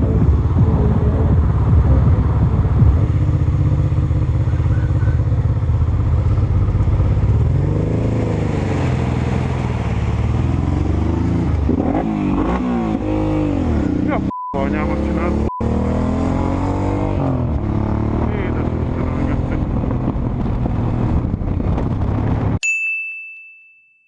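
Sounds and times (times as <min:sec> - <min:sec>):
motorcycle engine revving: 0:00.0 - 0:22.6.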